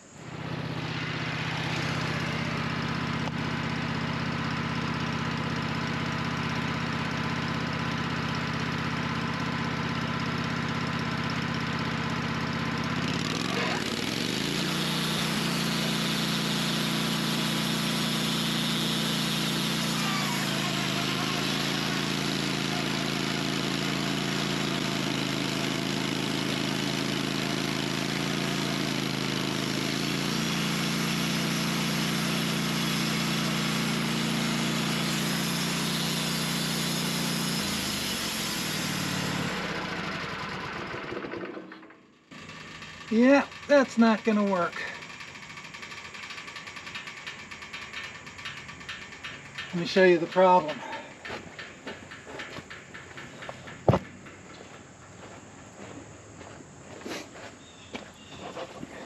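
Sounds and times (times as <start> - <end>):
engine idling and revving: 0.0 - 55.0.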